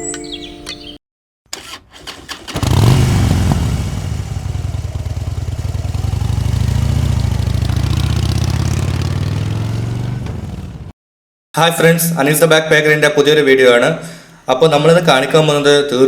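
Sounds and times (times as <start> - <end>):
engine starting and running: 1.5 - 10.9.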